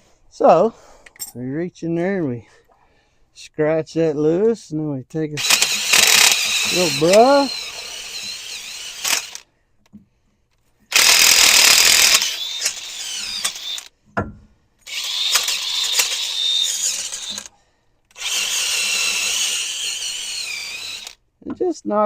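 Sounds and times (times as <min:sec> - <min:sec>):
wire brush on power drill whining: 0:05.4 - 0:09.5, 0:10.9 - 0:13.9, 0:14.8 - 0:21.2.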